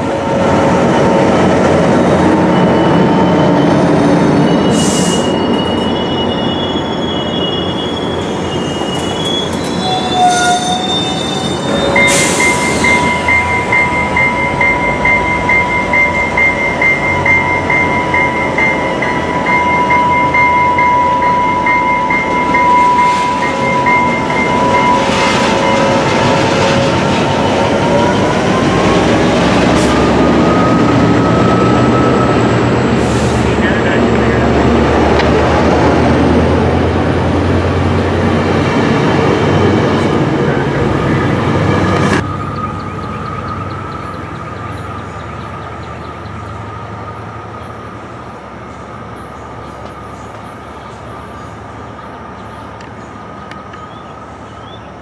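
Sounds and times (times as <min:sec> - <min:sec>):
train running on rails: 0:00.0 - 0:55.0
wheels squealing: 0:00.6 - 0:16.2.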